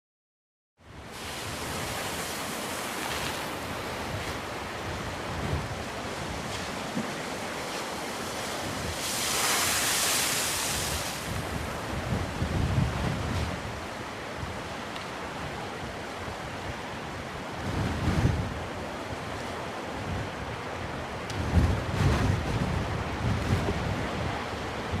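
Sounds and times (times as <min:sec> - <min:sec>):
waves breaking on shore: 0:00.8 - 0:25.0
wind rumbling on microphone: 0:00.8 - 0:25.0.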